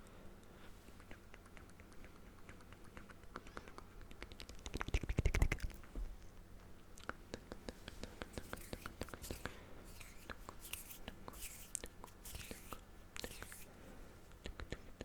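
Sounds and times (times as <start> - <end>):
close asmr clicks and taps: 1.0 - 5.8, 14.4 - 15.0.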